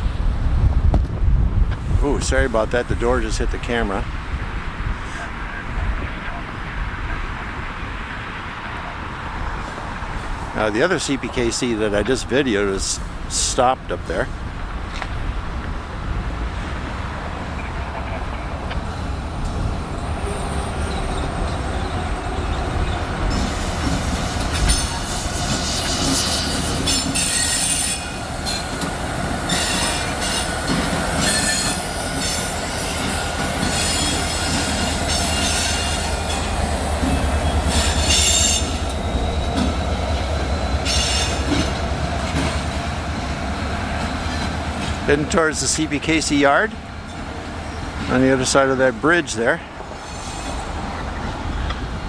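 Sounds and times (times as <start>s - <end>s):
train wheels rumbling on rails: 0.0s - 52.0s
train wheels squealing: 20.0s - 41.8s, 49.9s - 51.3s.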